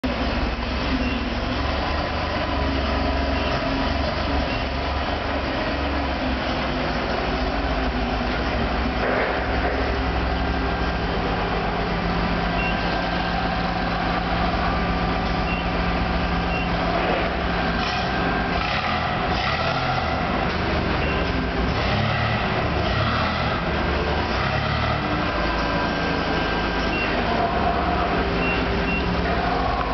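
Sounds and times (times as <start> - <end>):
milling machine rumble: 0.1 - 29.9.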